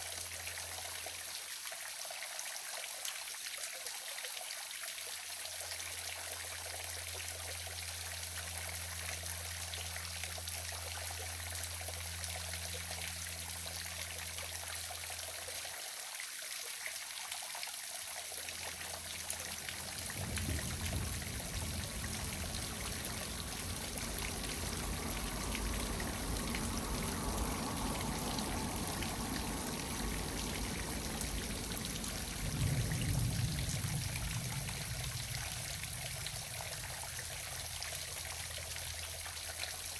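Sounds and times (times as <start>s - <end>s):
small waterfall splashing: 0.0s - 39.9s
low steady hum: 5.8s - 15.6s, 18.4s - 39.9s
low rumble: 18.6s - 39.6s.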